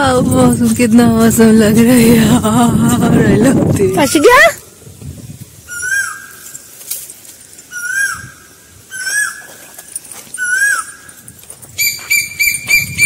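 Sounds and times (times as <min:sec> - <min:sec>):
bird calling: 0:05.6 - 0:06.7, 0:07.4 - 0:13.0.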